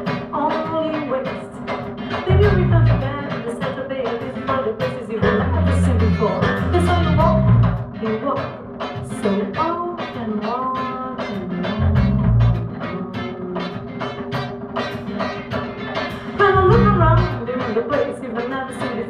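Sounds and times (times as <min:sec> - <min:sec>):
drums on a steady beat: 0:00.0 - 0:19.0
live band music: 0:00.0 - 0:19.0
heavy bass notes: 0:02.2 - 0:03.2, 0:05.2 - 0:08.0, 0:11.4 - 0:17.5.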